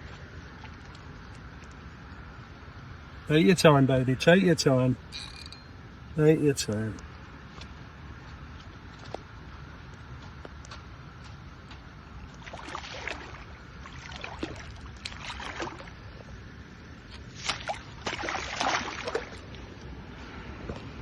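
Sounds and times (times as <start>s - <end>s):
fish splashing at water surface: 12.4s - 16.0s, 17.2s - 19.7s.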